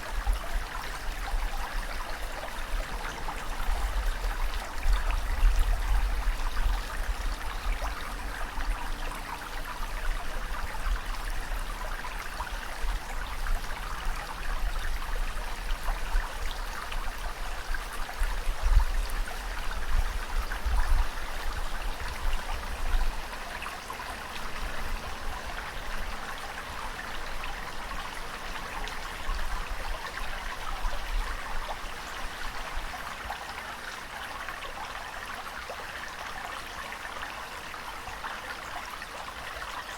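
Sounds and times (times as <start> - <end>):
running water trickling and splashing: 0.0 - 39.9.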